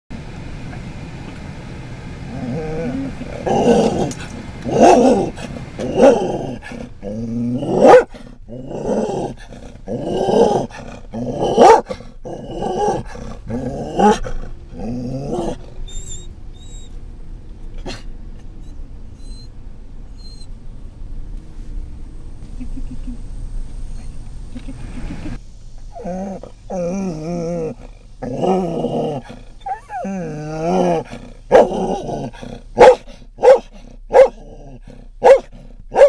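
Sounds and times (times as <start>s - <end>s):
van engine running: 0.1s - 36.0s
dog barking and growling: 2.3s - 15.9s, 25.9s - 36.0s.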